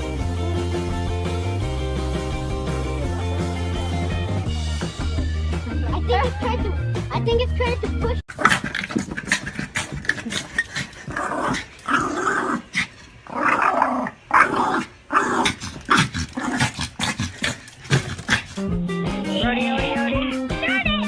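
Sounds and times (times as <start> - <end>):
dog growling: 8.3 - 18.7.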